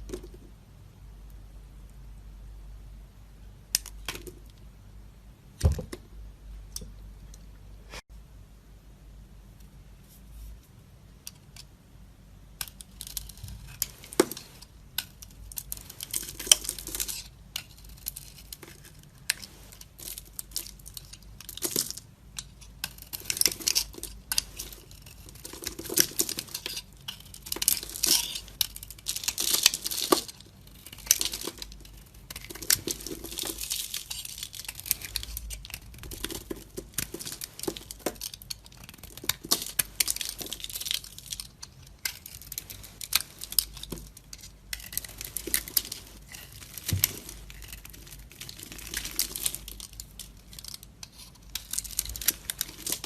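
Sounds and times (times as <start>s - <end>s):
dry soap crunching as cut: 22.8s - 44.0s, 44.7s - 53.0s.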